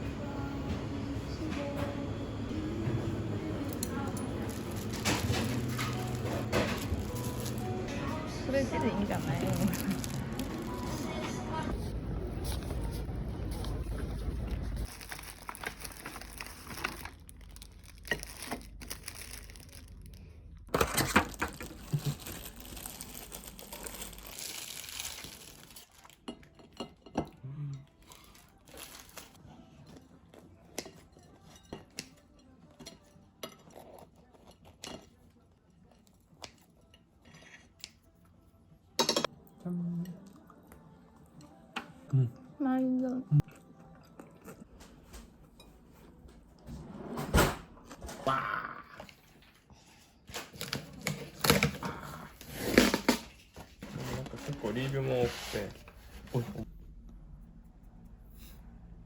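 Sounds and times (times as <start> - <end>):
low steady hum: 0.0 - 30.1, 55.8 - 59.0
tableware clinking and knocking: 4.1 - 8.2, 39.0 - 39.3
packaging crinkling and tearing: 9.2 - 11.1, 14.5 - 26.2, 28.0 - 29.4, 50.3 - 53.4.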